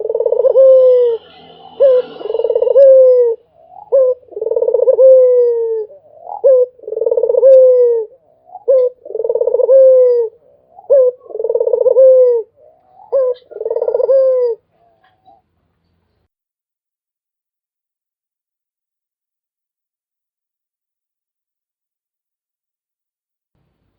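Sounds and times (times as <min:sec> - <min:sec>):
dove cooing: 0:00.0 - 0:15.5.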